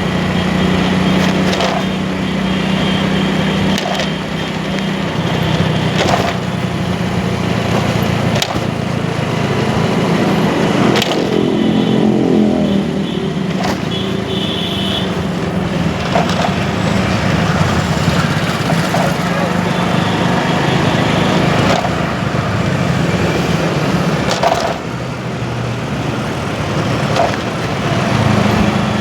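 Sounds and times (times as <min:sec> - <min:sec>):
motorcycle engine running: 0:00.0 - 0:29.0
road noise: 0:00.0 - 0:29.0
sharp clicks: 0:00.7 - 0:11.6, 0:21.1 - 0:22.4.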